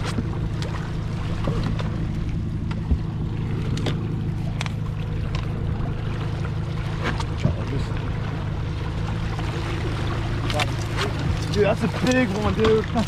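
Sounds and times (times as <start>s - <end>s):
outboard motor droning: 0.0s - 13.0s.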